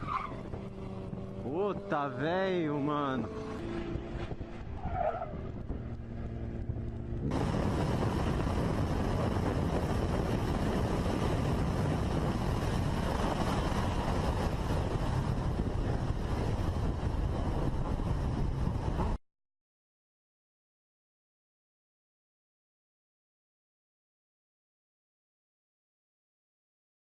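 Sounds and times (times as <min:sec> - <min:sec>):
wind rush from moving motorcycle: 0:00.0 - 0:19.2
motorcycle engine running: 0:00.4 - 0:19.2.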